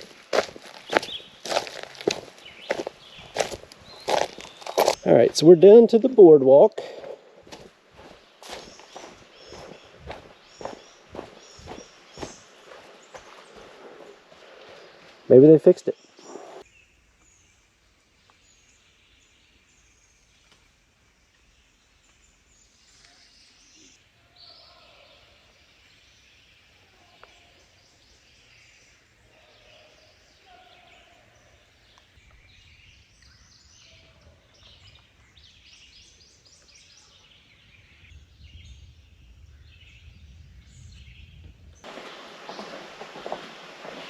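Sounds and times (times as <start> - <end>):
woodland birds chirping: 0.0 - 44.0
loud rustling: 41.8 - 44.0.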